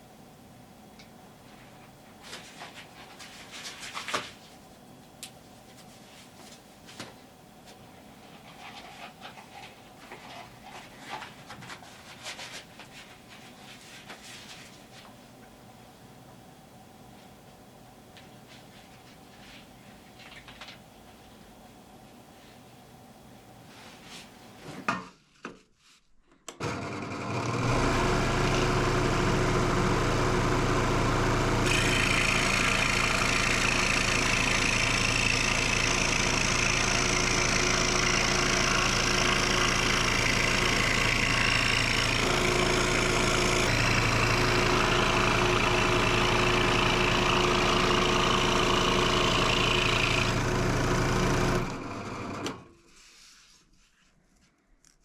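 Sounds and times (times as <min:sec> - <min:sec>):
electric power tool motor: 0:26.6 - 0:52.7.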